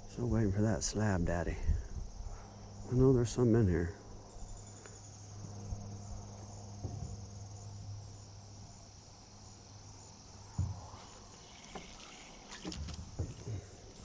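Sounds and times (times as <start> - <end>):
insects trilling: 0.0 - 14.0
low steady hum: 0.0 - 14.0
light knocks: 10.5 - 14.0.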